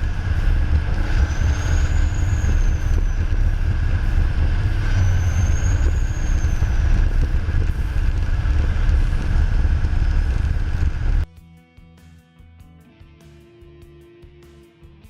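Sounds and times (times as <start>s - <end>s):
bulldozer deep rumble: 0.0s - 11.3s
faint high whine: 0.0s - 11.3s
quiet guitar music: 11.3s - 15.0s.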